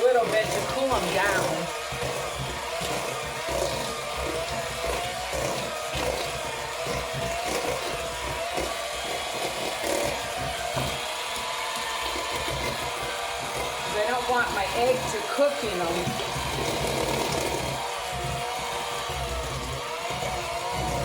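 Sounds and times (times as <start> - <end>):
electric mixer motor whine: 0.0 - 21.0
low knocks of potato chunks: 1.8 - 13.9.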